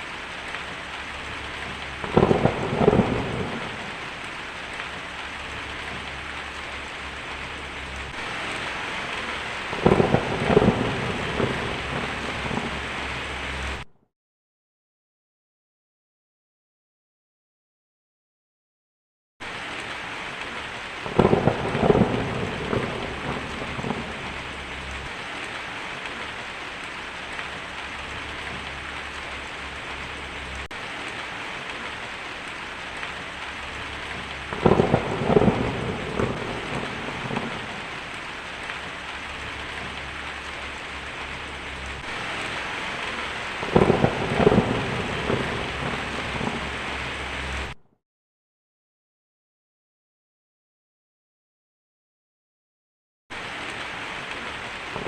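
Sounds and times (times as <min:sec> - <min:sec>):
heavy rain on a tin roof: 0:00.0 - 0:13.9, 0:19.4 - 0:47.8, 0:53.3 - 0:55.0
thunder rolling: 0:00.6 - 0:04.3, 0:04.9 - 0:13.9, 0:21.0 - 0:25.2, 0:33.0 - 0:47.8.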